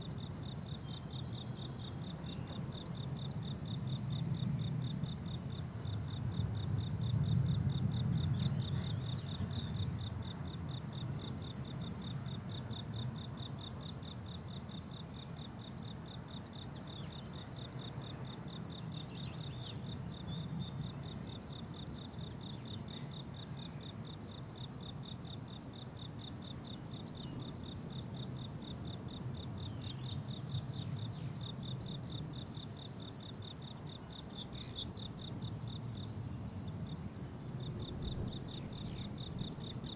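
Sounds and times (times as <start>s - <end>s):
crickets chirping: 0.0s - 39.9s
faint low rumble: 1.2s - 13.8s.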